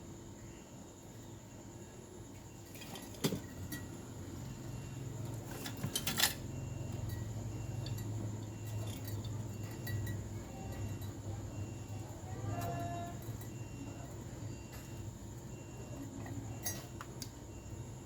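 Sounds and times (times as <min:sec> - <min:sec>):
steady low hum: 0:00.0 - 0:18.0
small metal objects clinking: 0:05.3 - 0:15.0, 0:16.2 - 0:17.2.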